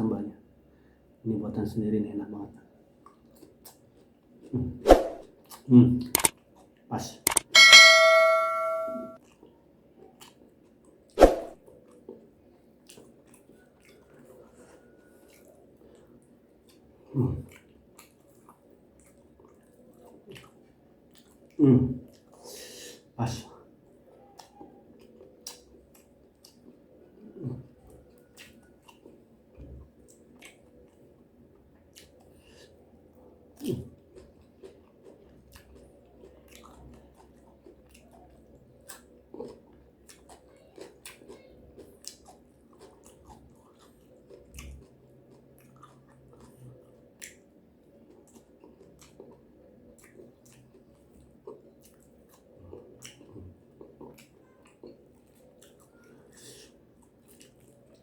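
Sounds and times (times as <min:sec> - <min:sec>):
person chewing crunchy food: 0:33.6 - 0:58.0.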